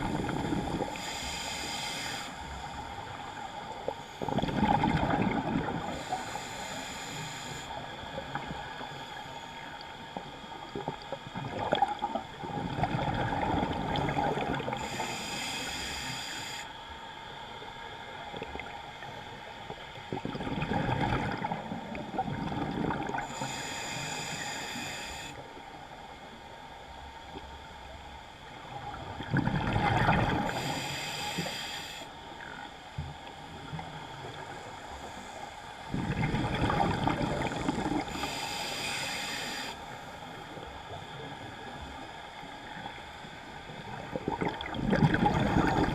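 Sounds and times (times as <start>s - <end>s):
hissing regulator inhalation: 0.4s - 3.3s, 5.9s - 7.8s, 14.7s - 16.7s, 23.2s - 25.4s, 30.5s - 32.1s, 37.5s - 40.2s
bubbling exhaled air: 4.2s - 7.3s, 35.9s - 39.6s, 44.0s - 45.9s.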